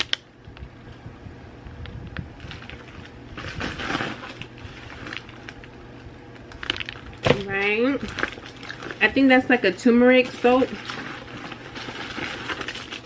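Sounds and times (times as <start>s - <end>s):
packaging being rummaged through: 2.4s - 5.7s, 6.5s - 13.0s.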